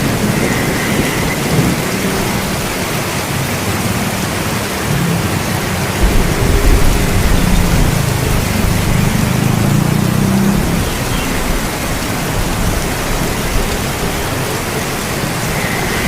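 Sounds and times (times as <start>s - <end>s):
rain hissing: 0.0s - 16.0s
low thunder rumble: 6.0s - 16.0s.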